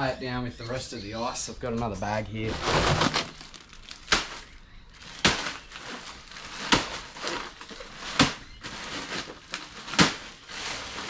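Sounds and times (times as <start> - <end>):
bag of ice struck thuds: 2.5 - 11.0.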